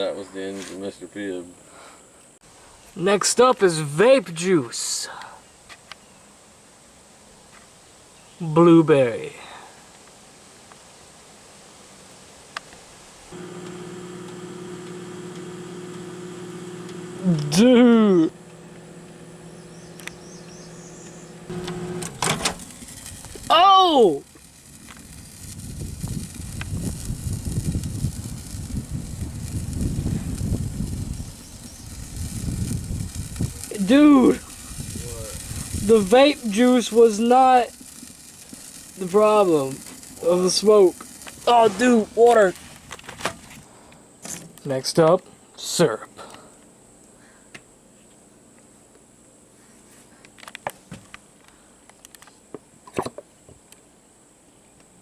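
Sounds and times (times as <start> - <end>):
faint steady hiss: 0.0 - 55.0
microwave oven running: 13.4 - 22.6
low rumbling crackle: 21.0 - 43.0.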